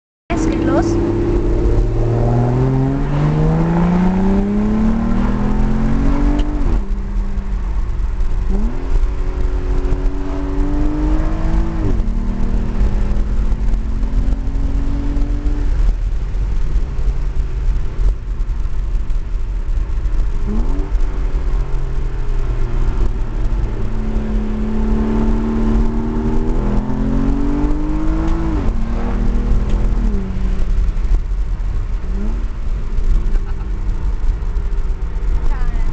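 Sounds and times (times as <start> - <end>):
car engine accelerating through gears: 0.3 - 35.9
low rumble: 0.3 - 35.9.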